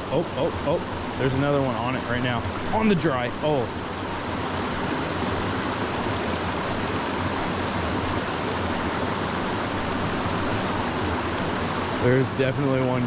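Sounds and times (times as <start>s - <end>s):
creek splashing over rocks: 0.0s - 13.0s.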